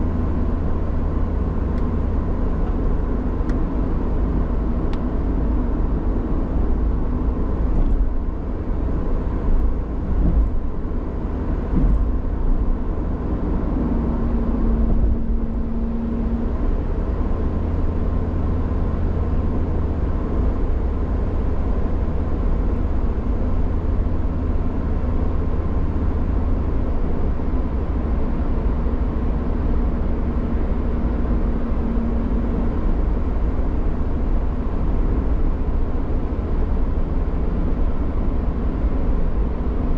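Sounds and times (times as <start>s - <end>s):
car engine and tyre noise: 0.0s - 39.9s
knocks from road bumps: 11.7s - 12.2s.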